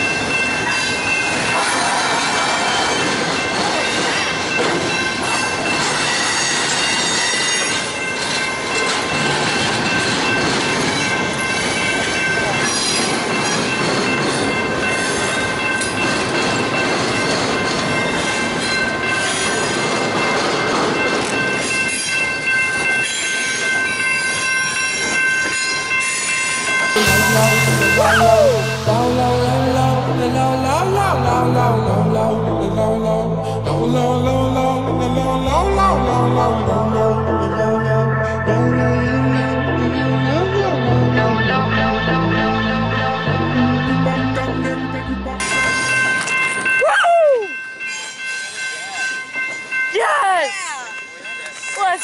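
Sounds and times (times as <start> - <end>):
train wheels rumbling on rail: 0.0 - 27.6
music: 27.0 - 46.4.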